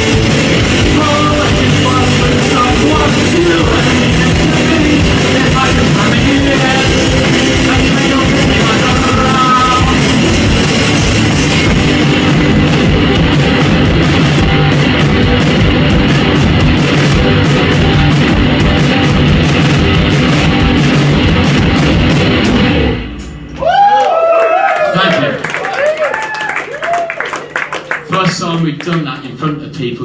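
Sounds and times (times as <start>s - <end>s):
loud rock music: 0.0s - 24.0s.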